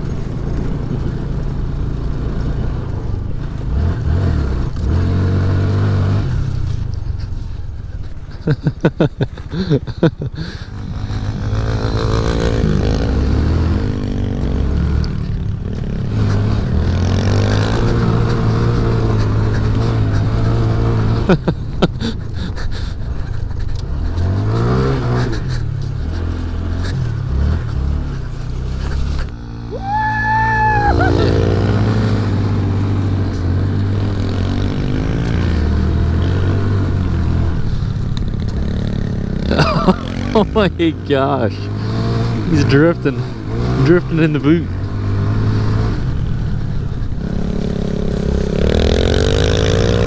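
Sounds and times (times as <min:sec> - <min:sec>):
mini bike engines revving: 0:03.5 - 0:50.0.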